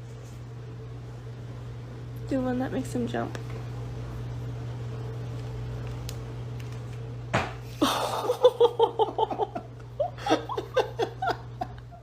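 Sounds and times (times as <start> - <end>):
person laughing: 7.8 - 12.0.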